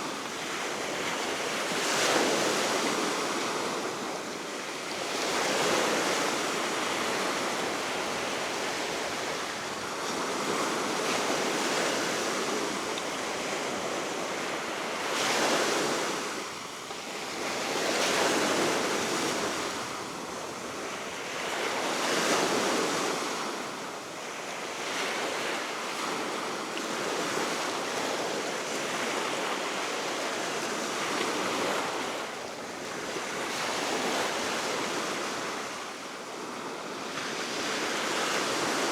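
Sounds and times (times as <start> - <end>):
wind: 0.0 - 38.9.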